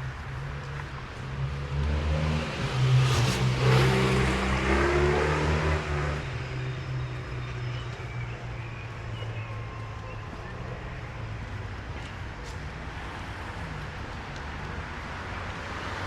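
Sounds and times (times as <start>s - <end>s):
tyres on wet road: 0.0s - 16.0s
car engine accelerating: 1.2s - 7.9s.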